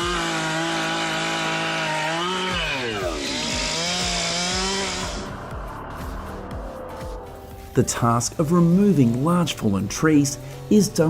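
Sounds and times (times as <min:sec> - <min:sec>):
chainsaw cutting log: 0:00.0 - 0:07.8.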